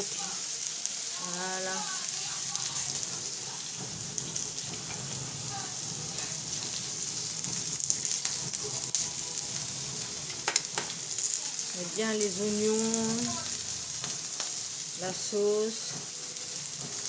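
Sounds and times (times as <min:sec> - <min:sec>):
vegetables sizzling on a griddle: 0:00.0 - 0:17.0.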